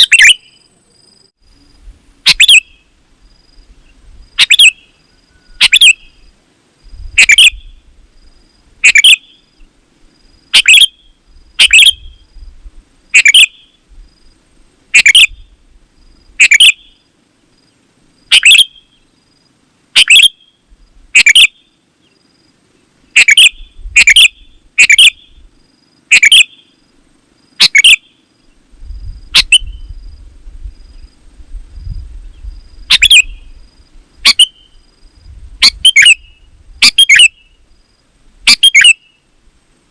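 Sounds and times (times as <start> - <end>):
bulbul calling: 0.0 - 0.7, 2.2 - 2.9, 4.4 - 6.3, 7.1 - 7.8, 8.8 - 9.5, 10.5 - 12.3, 13.1 - 13.8, 14.9 - 15.6, 16.4 - 17.0, 18.3 - 19.0, 20.0 - 21.7, 23.1 - 25.4, 26.1 - 26.7, 27.6 - 28.2, 29.3 - 29.9, 32.9 - 33.6, 34.2 - 34.8, 35.6 - 37.6, 38.4 - 39.2.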